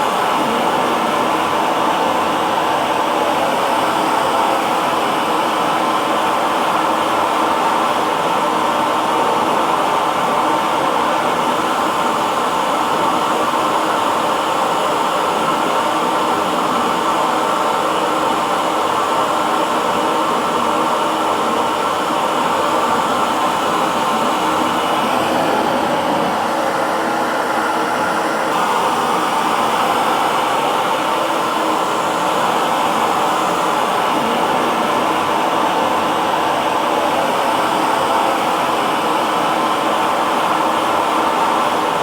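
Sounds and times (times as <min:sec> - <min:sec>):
hair dryer blowing: 0:00.0 - 0:42.0.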